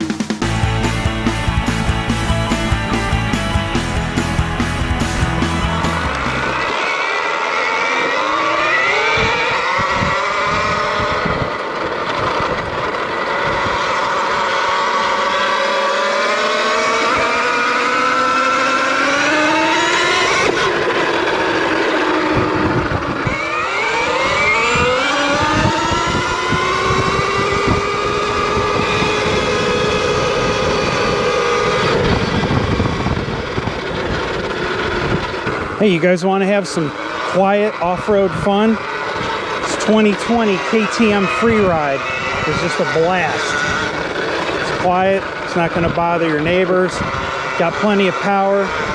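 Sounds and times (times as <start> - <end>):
short low thumps: 0.2 - 6.8
electric motor whine: 0.4 - 35.8, 36.8 - 48.9.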